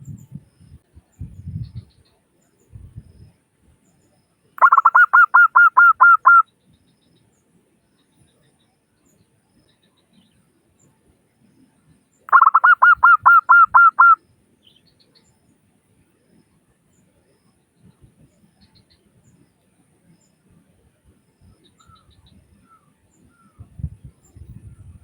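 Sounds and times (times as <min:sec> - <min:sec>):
dove cooing: 0:04.6 - 0:06.4, 0:12.3 - 0:14.2.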